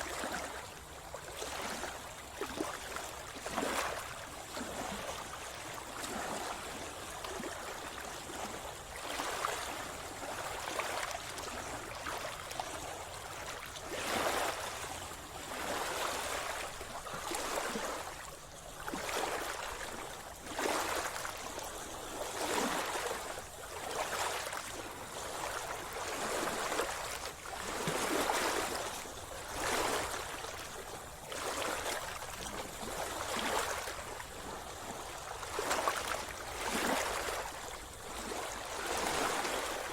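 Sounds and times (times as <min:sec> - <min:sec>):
sea water splashing: 0:08.4 - 0:39.9.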